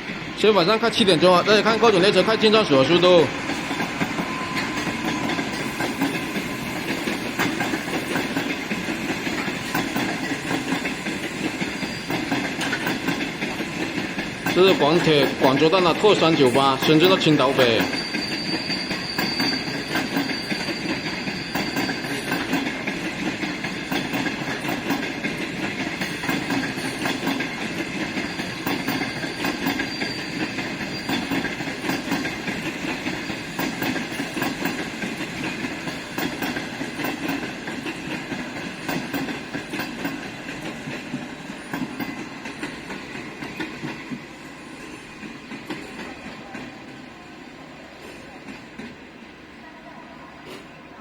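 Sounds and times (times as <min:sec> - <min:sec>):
train wheel rumble: 0:00.0 - 0:49.5
high wheel squeal: 0:01.4 - 0:24.9, 0:26.0 - 0:37.3
wheels clicking over rail joints: 0:06.8 - 0:44.2.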